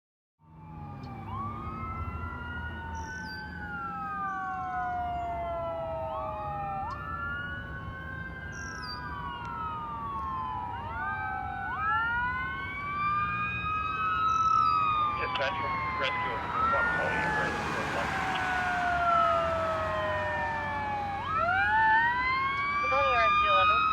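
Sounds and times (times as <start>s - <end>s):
fire engine sirens wailing: 0.4s - 23.9s
engine rumble: 0.5s - 23.9s.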